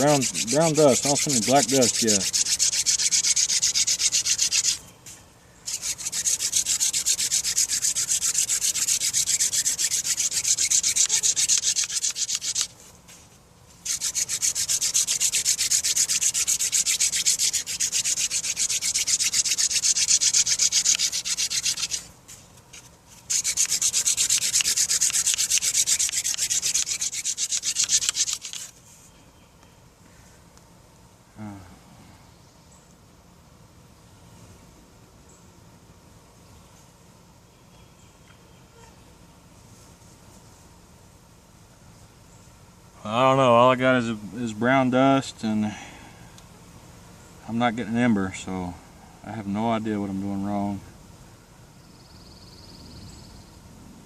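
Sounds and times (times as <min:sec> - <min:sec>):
wooden spindle scratching in hearth board: 0:00.0 - 0:04.8, 0:05.7 - 0:29.1.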